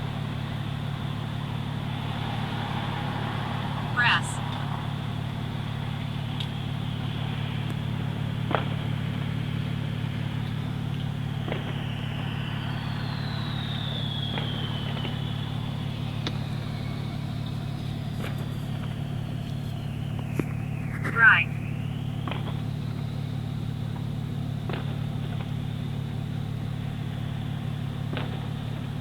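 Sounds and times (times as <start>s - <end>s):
car engine idling: 0.0s - 29.0s
faint high whistle: 11.6s - 18.7s.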